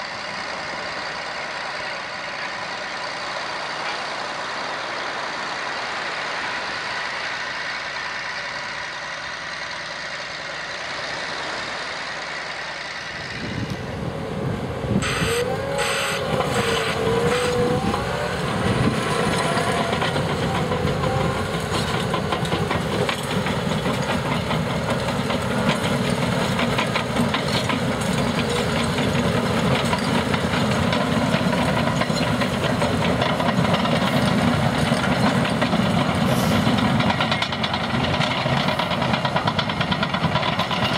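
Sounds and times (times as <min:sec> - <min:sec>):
low engine rumble: 0:00.0 - 0:40.9
wavering machine squeal: 0:15.0 - 0:22.0.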